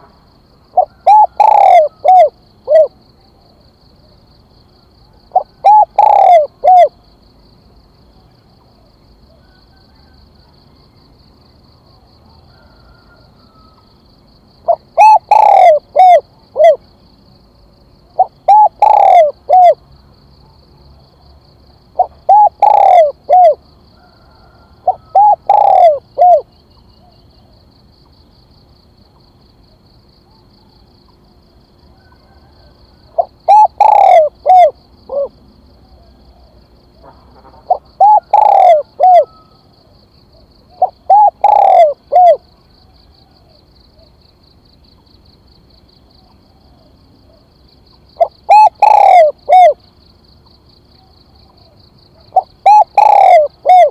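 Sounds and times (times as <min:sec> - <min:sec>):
dove cooing: 0:00.7 - 0:03.0, 0:05.1 - 0:07.0, 0:14.6 - 0:16.8, 0:18.2 - 0:19.8, 0:22.0 - 0:27.4, 0:32.0 - 0:42.5, 0:48.2 - 0:49.8, 0:51.4 - 0:53.9.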